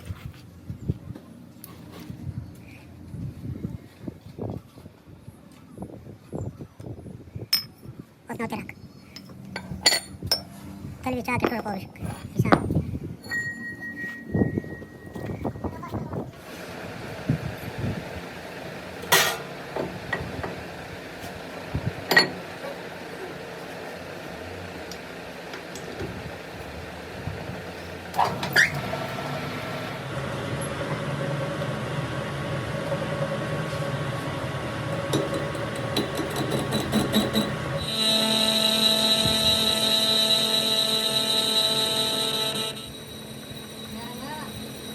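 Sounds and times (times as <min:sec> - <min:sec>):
mechanical hum: 0:14.2 - 0:44.9
metal tools clanking: 0:35.0 - 0:37.7.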